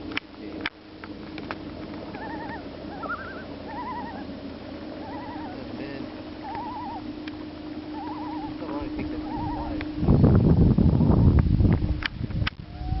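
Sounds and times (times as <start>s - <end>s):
steady low hum: 0.0s - 13.0s
loon tremolo call: 1.7s - 11.4s, 12.6s - 13.0s.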